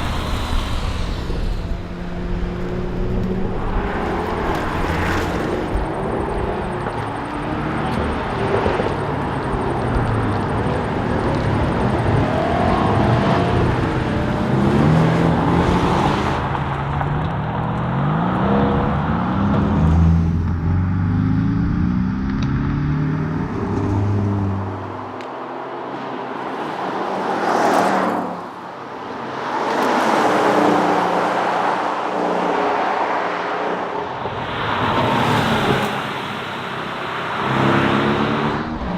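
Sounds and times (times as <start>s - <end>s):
car engine accelerating: 0.0s - 25.5s, 35.2s - 38.9s
rushing car noise: 0.0s - 38.9s.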